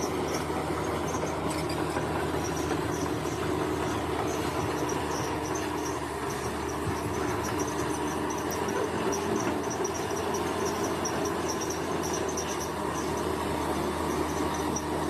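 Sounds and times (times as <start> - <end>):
heavy diesel engine running: 0.0 - 15.0
insects chirping: 2.4 - 13.3.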